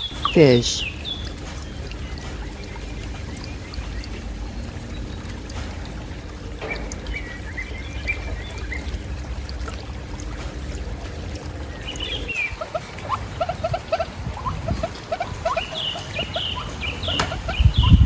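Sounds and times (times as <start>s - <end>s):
steady low rumble: 0.0s - 12.6s
trickling water: 0.0s - 18.0s.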